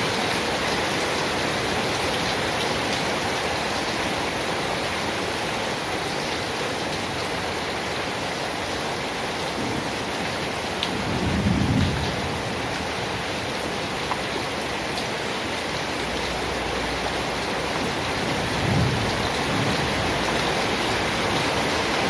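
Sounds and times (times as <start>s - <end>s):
rain hiss: 0.0s - 22.0s
distant thunder rumble: 11.0s - 12.6s, 17.8s - 21.2s.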